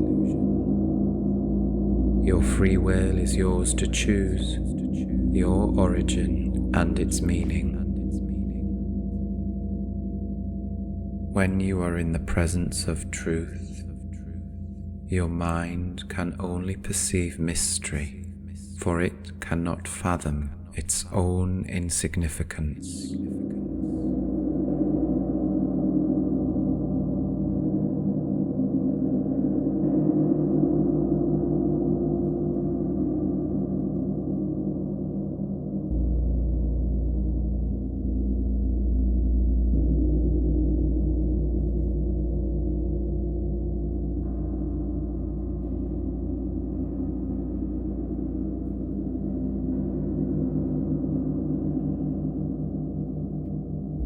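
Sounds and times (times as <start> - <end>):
deep low swell: 0.0 - 21.2, 22.9 - 54.0
gong with beating low tones: 0.0 - 21.6, 22.3 - 54.0.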